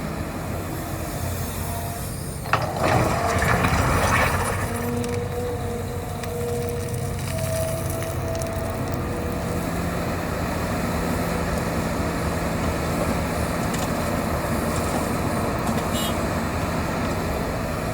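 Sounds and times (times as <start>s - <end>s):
excavator diesel engine rumble: 0.0s - 17.9s.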